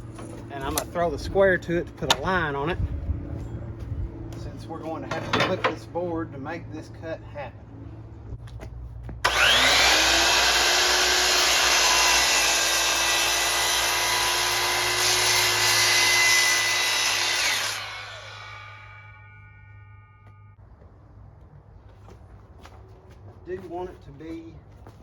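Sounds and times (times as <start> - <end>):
circular saw cutting plywood: 9.2 - 19.6.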